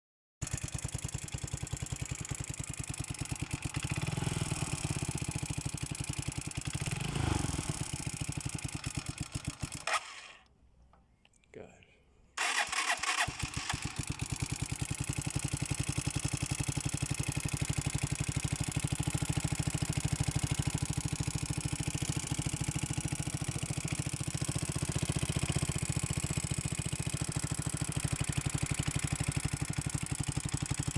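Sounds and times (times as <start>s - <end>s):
motorcycle engine idling: 0.4s - 10.1s, 12.4s - 30.9s
engine ticking: 12.4s - 30.9s.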